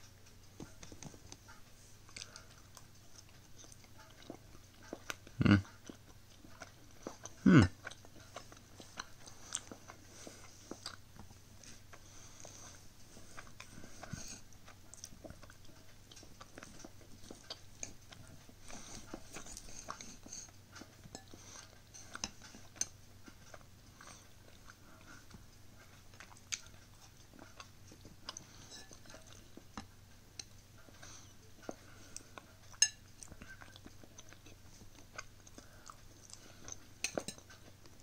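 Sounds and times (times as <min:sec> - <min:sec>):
faint low hum: 0:00.0 - 0:38.0
chewing and biting: 0:00.2 - 0:38.0
cutlery scraping on ceramic plate: 0:28.7 - 0:29.2.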